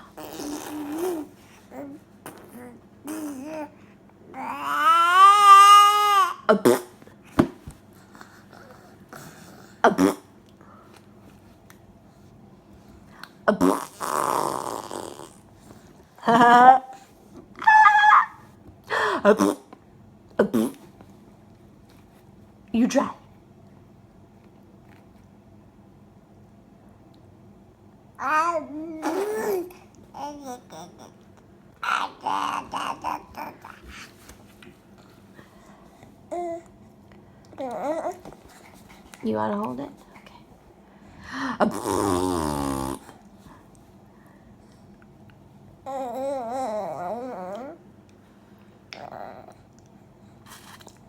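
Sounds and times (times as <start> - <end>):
faint low hum: 0.0 - 51.0
baby squealing: 17.6 - 18.4.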